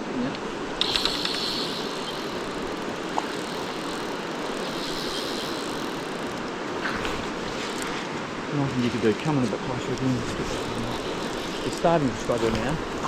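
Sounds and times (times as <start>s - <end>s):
flowing river: 0.0s - 13.0s
clicks: 0.3s - 2.4s.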